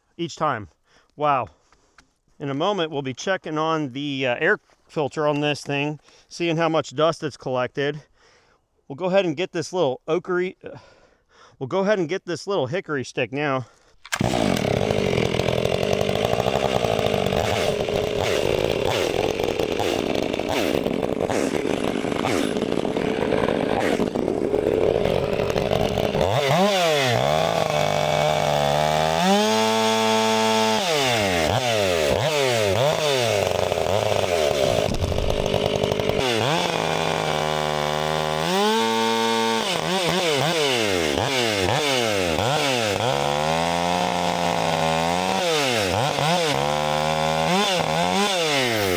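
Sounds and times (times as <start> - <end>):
chainsaw cutting log: 14.0 - 48.9
chainsaw engine revving: 14.0 - 48.9.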